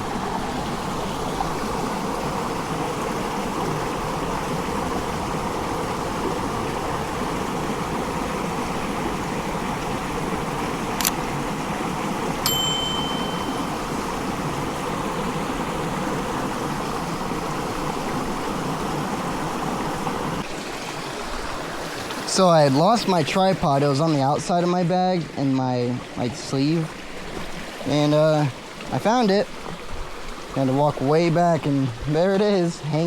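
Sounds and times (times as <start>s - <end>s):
creek water rushing: 0.0s - 33.0s
brief high tone: 12.5s - 14.1s.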